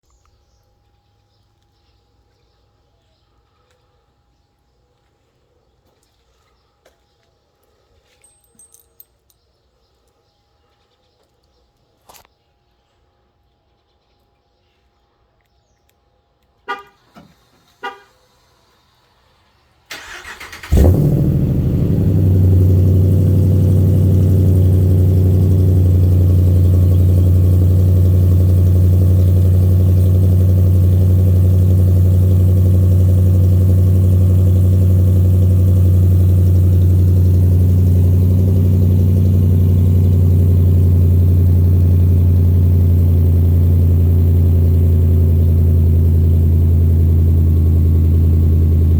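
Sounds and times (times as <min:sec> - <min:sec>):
car engine starting and idling: 0:19.4 - 0:48.9.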